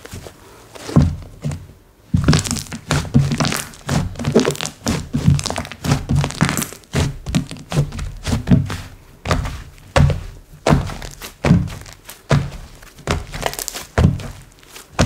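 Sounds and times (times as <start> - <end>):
slime squelching by hand: 2.2 - 15.0.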